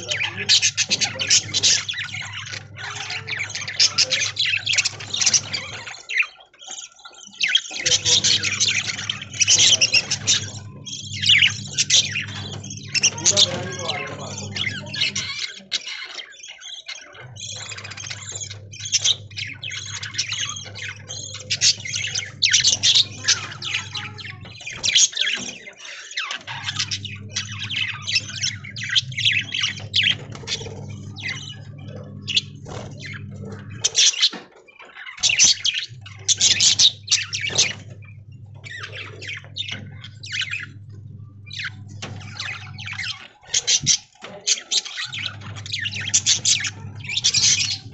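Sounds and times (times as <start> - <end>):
budgerigars chattering: 0.0 - 47.9
low hum: 35.9 - 43.2.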